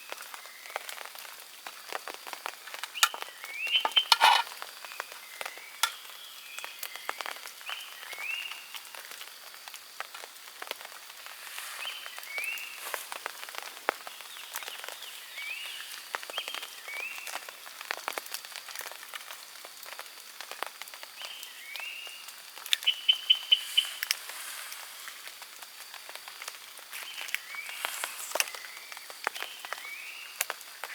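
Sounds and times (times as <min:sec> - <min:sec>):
rain dripping: 0:00.0 - 0:30.9
frog calling: 0:03.0 - 0:04.5, 0:22.7 - 0:24.2.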